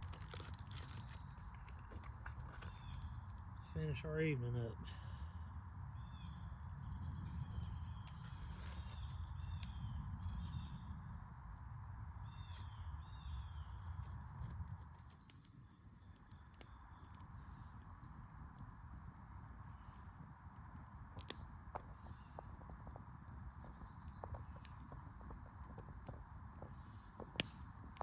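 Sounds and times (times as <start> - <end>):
insects chorus: 0.0 - 28.0
short insect chirps: 0.0 - 28.0.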